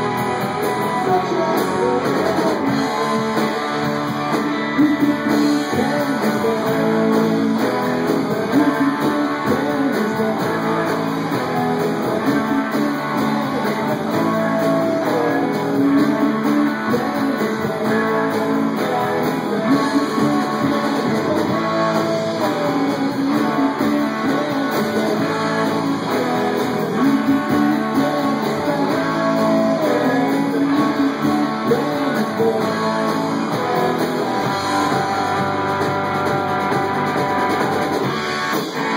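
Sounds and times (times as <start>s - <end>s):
electric guitar: 0.0s - 38.9s
live band music: 0.0s - 38.9s.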